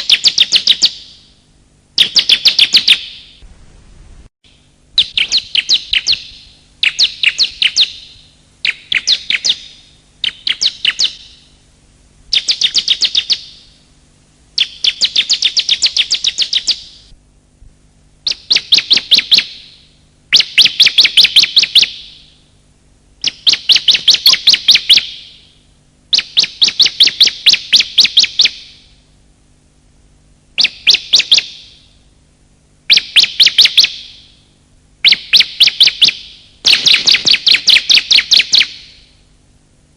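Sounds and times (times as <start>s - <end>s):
bird chattering calls: 0.0s - 1.2s, 2.0s - 3.4s, 5.0s - 11.5s, 12.3s - 13.7s, 14.6s - 17.0s, 18.2s - 22.2s, 23.2s - 25.4s, 26.1s - 28.8s, 30.6s - 31.8s, 32.9s - 34.2s, 35.0s - 39.1s.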